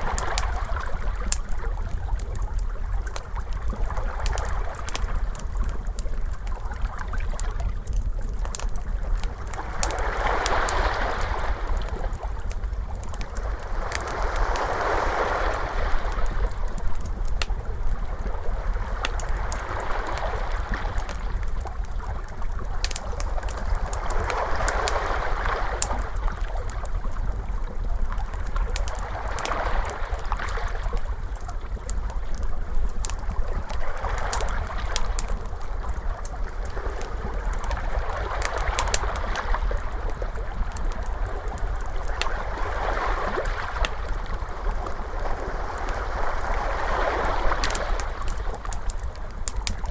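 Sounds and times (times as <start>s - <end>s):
fire crackling and popping: 0.0s - 49.9s
ocean waves washing: 9.1s - 21.5s, 22.9s - 26.2s, 41.4s - 49.9s.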